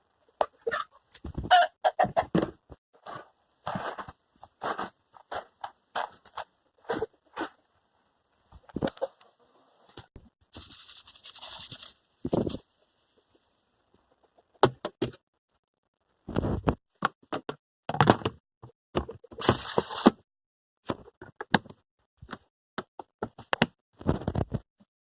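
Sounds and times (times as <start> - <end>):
rustling noise: 3.0 - 7.6, 9.8 - 13.6.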